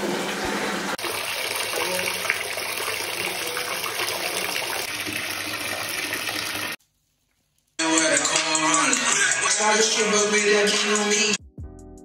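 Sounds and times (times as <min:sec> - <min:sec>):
shower water splashing on tub: 0:01.0 - 0:06.8.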